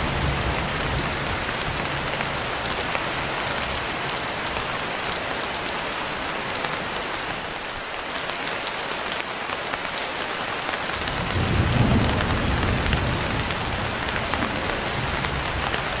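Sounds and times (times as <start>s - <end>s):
thunder rumbling: 0.0s - 3.2s, 11.0s - 16.0s
steady rain: 0.0s - 16.0s.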